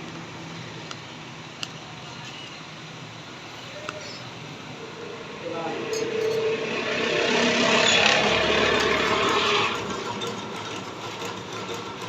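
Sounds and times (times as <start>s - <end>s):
metal lathe running: 3.2s - 12.0s.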